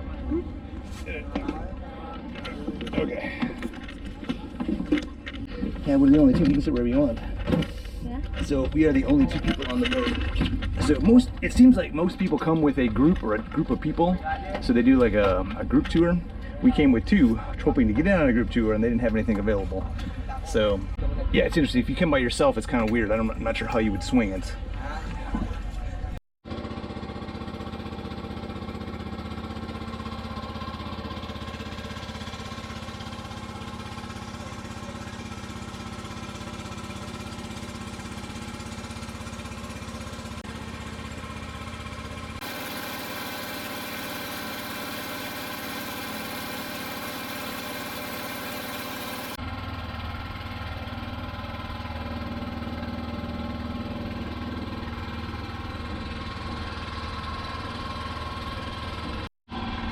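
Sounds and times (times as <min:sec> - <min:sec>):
boat engine droning: 0:27.1 - 0:49.4.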